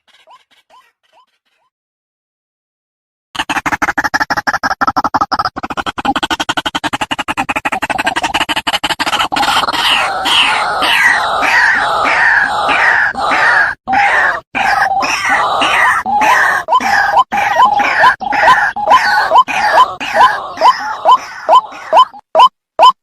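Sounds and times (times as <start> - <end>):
waterhen calling harsh notes: 9.0 - 23.0.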